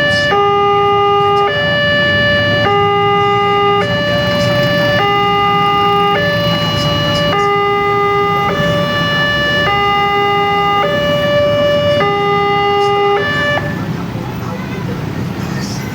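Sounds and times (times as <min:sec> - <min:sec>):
two-tone level crossing alarm: 0:00.0 - 0:13.9.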